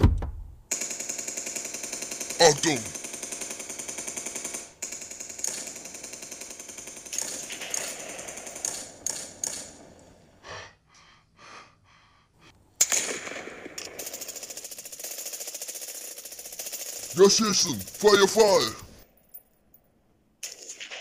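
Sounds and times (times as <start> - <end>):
machine-gun fire: 0.7 - 10.0, 12.8 - 18.8.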